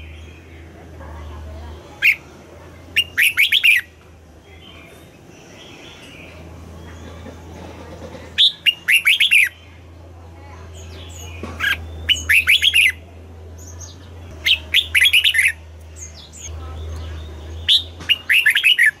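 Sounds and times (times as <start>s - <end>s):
bird singing whistled phrases: 3.0s - 3.9s, 8.4s - 9.6s, 11.2s - 13.0s, 14.4s - 16.2s, 17.6s - 19.0s.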